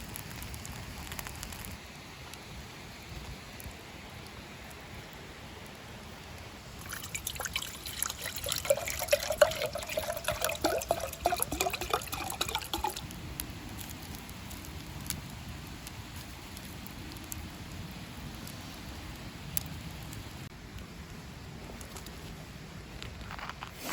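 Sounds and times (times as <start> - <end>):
water pouring into a vessel: 6.8 - 13.1.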